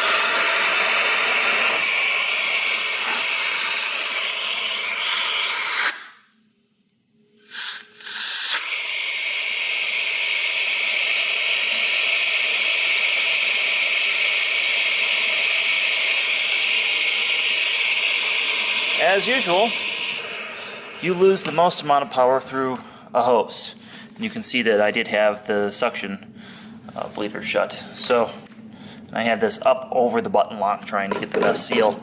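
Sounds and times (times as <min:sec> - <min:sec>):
vacuum air rushing through hose: 0:00.0 - 0:06.4, 0:07.4 - 0:23.0.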